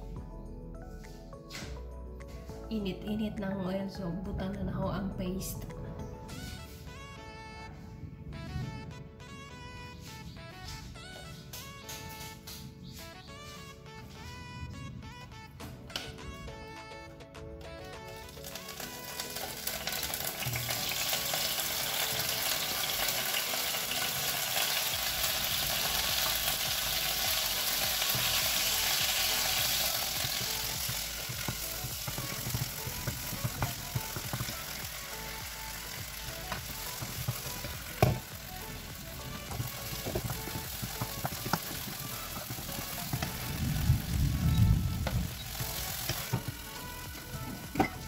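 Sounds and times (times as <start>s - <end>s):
paste sizzling in hot oil: 18.4s - 48.0s.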